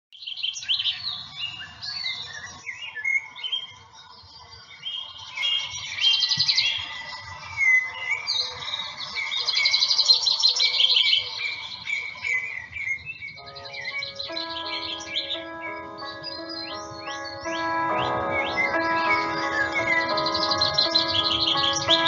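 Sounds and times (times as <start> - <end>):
songbirds chirping and trilling: 0.3 - 22.0
soft music with held notes: 13.4 - 22.0.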